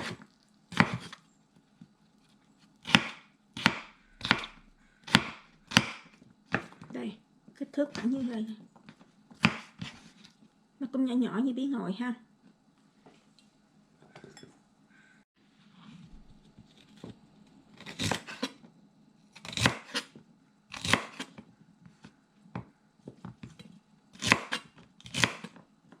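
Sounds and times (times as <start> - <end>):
knife cutting vegetables on board: 0.0 - 1.2, 2.8 - 6.9, 9.4 - 10.3, 17.8 - 18.6, 19.4 - 21.4, 23.4 - 25.6.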